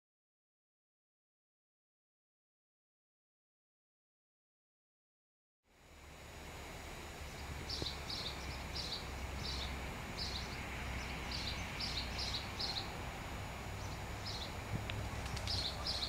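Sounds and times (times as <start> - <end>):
steady low rumble: 5.7 - 16.0.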